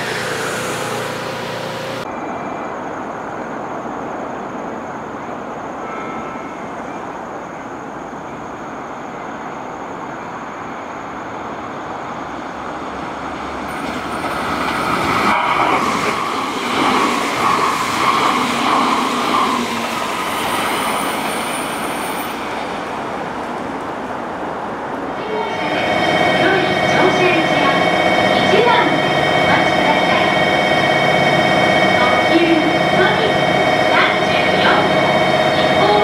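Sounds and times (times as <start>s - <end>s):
train wheels rumbling on rails: 0.0s - 2.2s, 11.1s - 36.0s.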